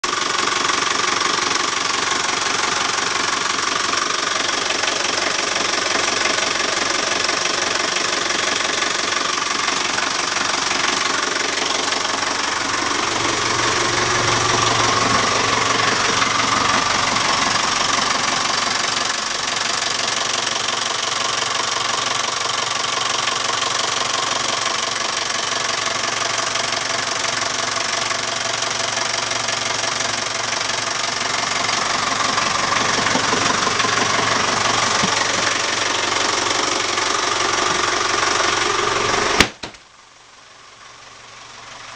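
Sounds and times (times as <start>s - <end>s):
boat engine running: 32.2s - 36.2s.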